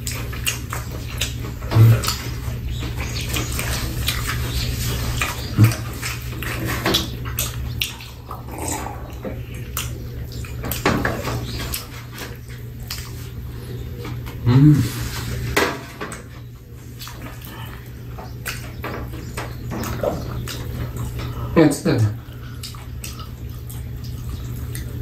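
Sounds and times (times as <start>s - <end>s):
wet chewing and lip-smacking: 0.0s - 14.4s, 16.4s - 21.6s, 22.2s - 25.0s
mouth clicks: 5.4s - 5.9s.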